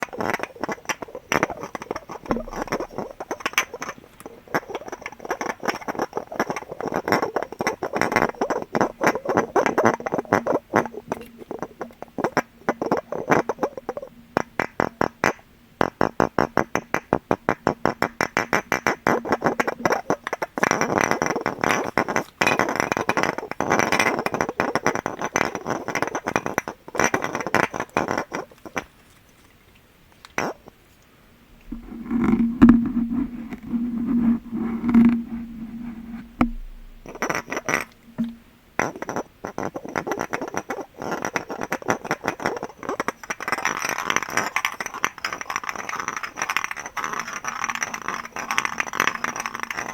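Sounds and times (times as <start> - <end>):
fast tapping on glass: 0.0 - 28.8, 31.7 - 49.9
faint low steady tone: 31.4 - 37.4, 38.0 - 38.8.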